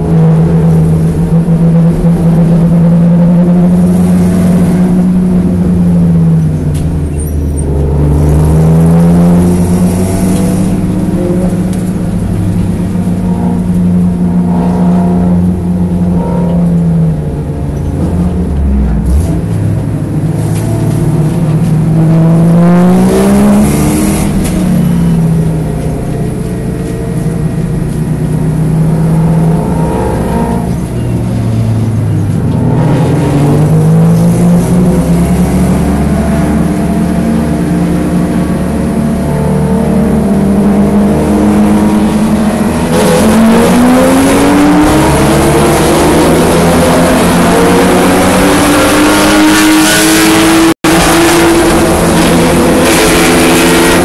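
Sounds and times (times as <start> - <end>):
car engine revving hard: 7.7 - 16.8, 19.0 - 26.5, 32.5 - 54.0.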